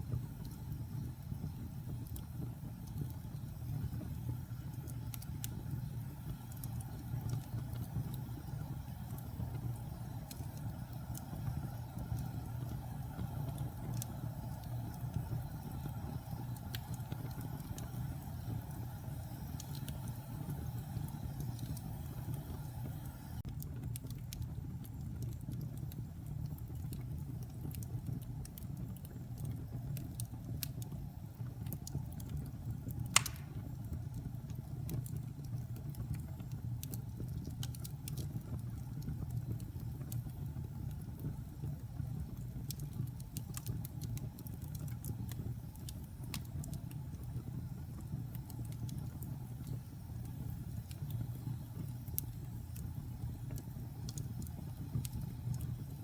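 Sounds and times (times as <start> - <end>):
fire popping: 0.0 - 56.0
wood fire crackling: 0.0 - 56.0.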